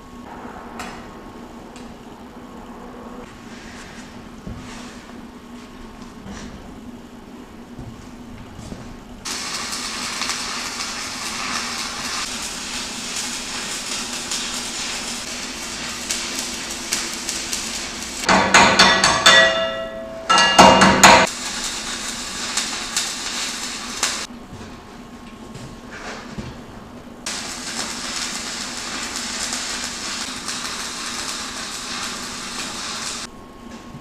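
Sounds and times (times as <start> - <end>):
welding arc crackling: 9.2 - 19.9, 20.6 - 24.3, 27.2 - 33.3.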